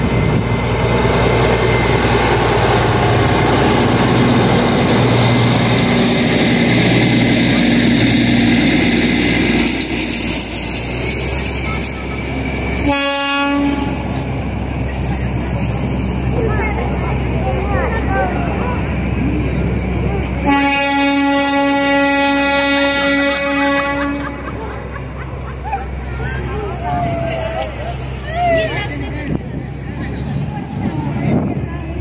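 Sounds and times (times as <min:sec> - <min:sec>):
diesel locomotive engine drone: 0:00.0 - 0:32.0
horn blast: 0:12.8 - 0:14.1, 0:20.4 - 0:24.4.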